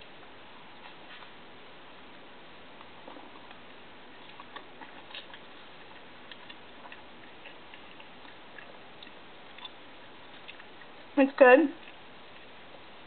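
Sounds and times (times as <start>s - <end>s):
person chewing food: 2.8s - 11.2s, 11.8s - 13.0s.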